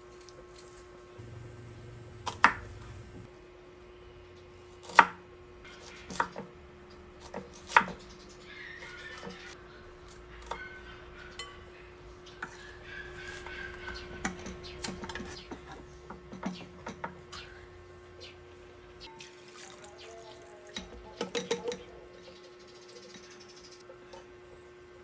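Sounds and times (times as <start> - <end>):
kitchen utensils clinking: 12.4 - 17.6, 19.1 - 22.1.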